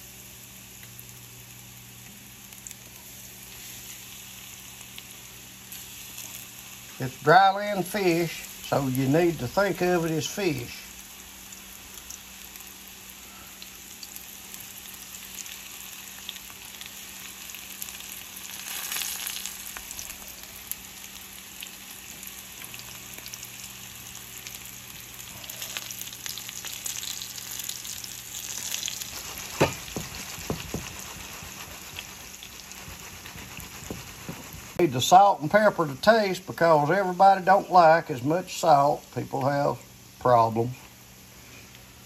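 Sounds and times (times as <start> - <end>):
mushrooms frying in a skillet: 0.0 - 42.0.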